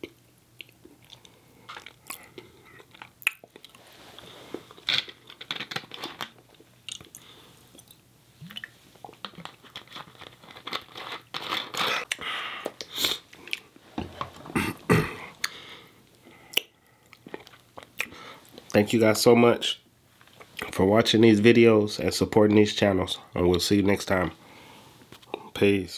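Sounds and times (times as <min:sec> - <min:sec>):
mouth clicking and smacking: 0:00.0 - 0:03.8, 0:06.6 - 0:09.6, 0:11.8 - 0:13.7, 0:14.6 - 0:15.6, 0:16.2 - 0:18.7
person chewing food: 0:00.0 - 0:13.8, 0:14.7 - 0:18.7.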